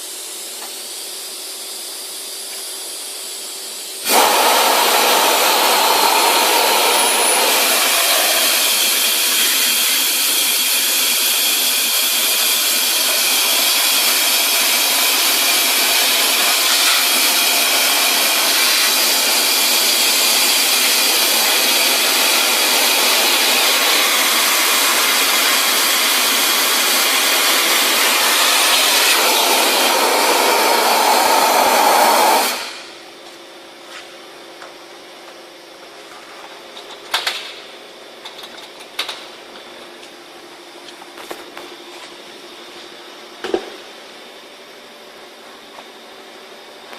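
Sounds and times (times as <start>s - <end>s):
vacuum cleaner hissing: 4.0s - 33.0s.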